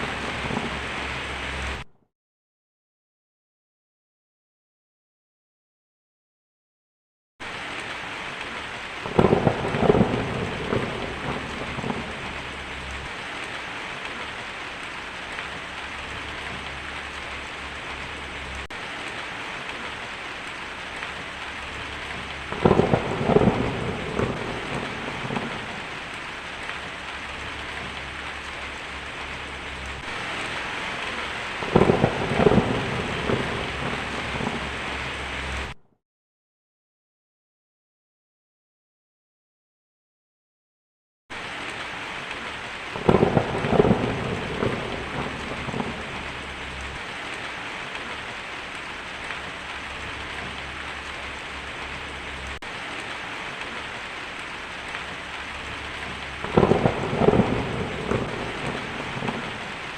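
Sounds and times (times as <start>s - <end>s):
heavy rain on a tin roof: 0.0s - 1.9s, 7.4s - 35.8s, 41.3s - 59.9s
thunder cracks: 0.0s - 1.9s, 9.0s - 13.2s, 21.1s - 26.2s, 27.4s - 35.0s, 42.9s - 47.0s, 55.6s - 59.9s.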